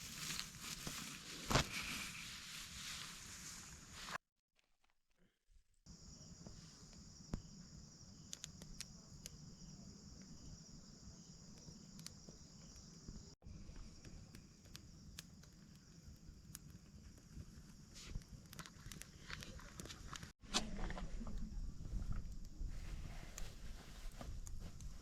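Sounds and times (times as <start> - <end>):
insects chirring: 5.9 - 20.3.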